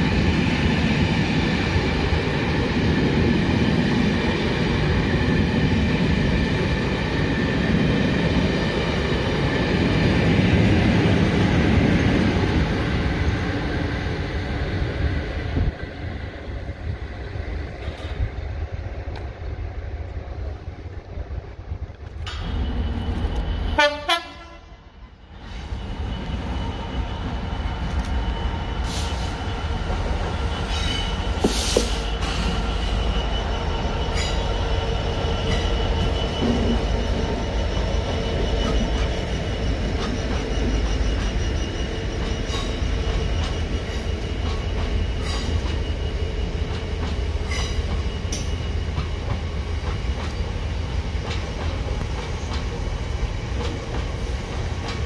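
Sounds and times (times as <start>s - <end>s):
diesel locomotive rumbling: 0.0s - 55.0s
locomotive horn blast: 23.8s - 24.9s.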